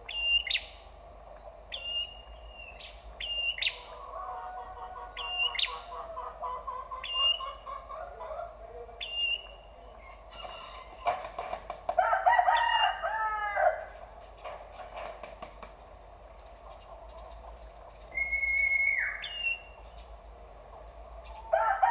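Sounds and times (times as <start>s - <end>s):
bird chirping: 0.0s - 1.0s, 1.7s - 3.9s, 5.2s - 6.0s, 6.9s - 7.7s, 9.0s - 10.2s, 16.7s - 20.4s
rooster crowing: 3.7s - 6.1s, 10.0s - 11.3s, 11.9s - 14.0s, 21.4s - 21.9s.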